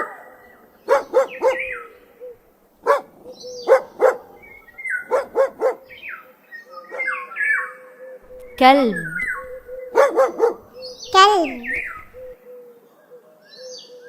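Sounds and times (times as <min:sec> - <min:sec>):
dog barking: 0:00.0 - 0:01.9, 0:02.8 - 0:06.0, 0:06.9 - 0:07.2, 0:08.4 - 0:12.3.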